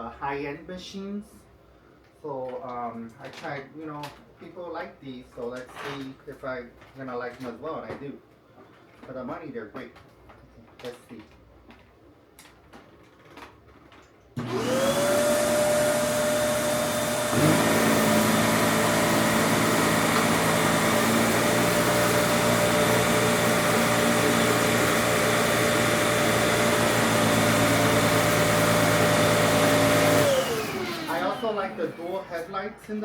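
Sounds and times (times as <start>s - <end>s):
vacuum cleaner motor whining: 14.4s - 33.0s.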